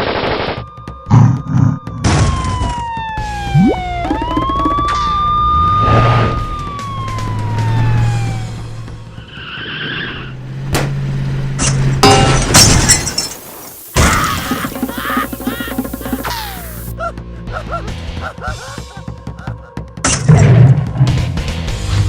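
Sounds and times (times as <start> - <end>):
cartoon siren-like whistle: 1.8 - 8.5, 13.9 - 16.9
cartoon crashes and clatters: 11.6 - 16.9.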